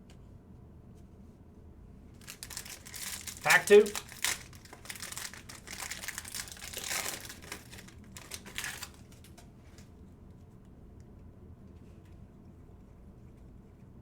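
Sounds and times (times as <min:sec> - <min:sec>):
wrapper crinkling: 0:02.2 - 0:09.4.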